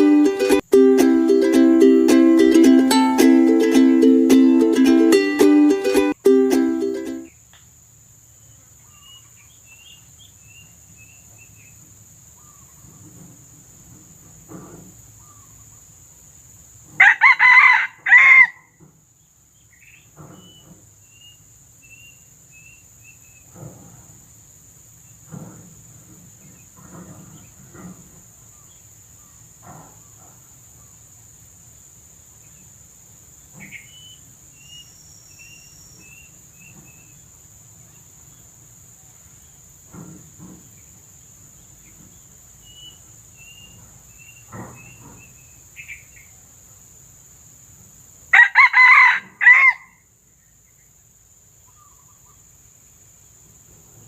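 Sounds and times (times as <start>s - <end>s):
rooster crowing: 17.0s - 18.8s, 48.3s - 50.0s.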